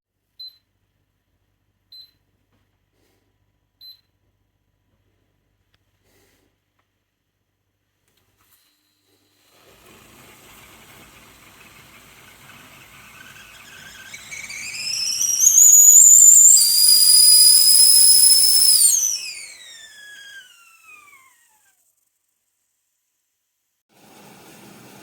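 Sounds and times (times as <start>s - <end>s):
kettle whistling: 9.6s - 21.8s.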